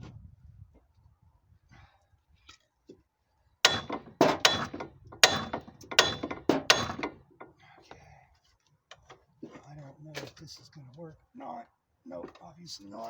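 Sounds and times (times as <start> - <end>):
hammer striking steel: 3.6 - 7.2.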